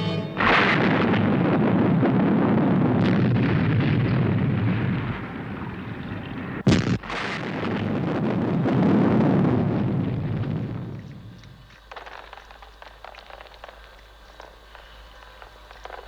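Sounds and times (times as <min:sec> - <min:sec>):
sharp bang: 0:00.0 - 0:02.2
explosion blast and rumble: 0:00.4 - 0:11.6.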